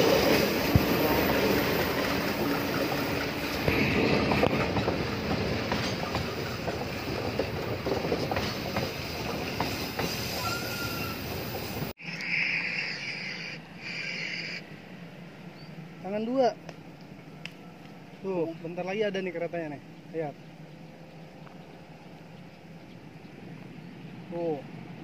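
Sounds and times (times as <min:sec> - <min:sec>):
train wheels clacking over rail joints: 0:00.0 - 0:10.3
train wheel squeal: 0:08.3 - 0:14.7.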